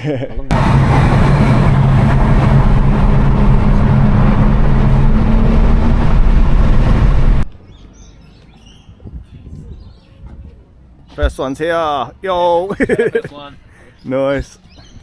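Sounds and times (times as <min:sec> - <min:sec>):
car engine and exhaust drone: 0:00.5 - 0:07.4
road and wind noise: 0:00.5 - 0:15.0.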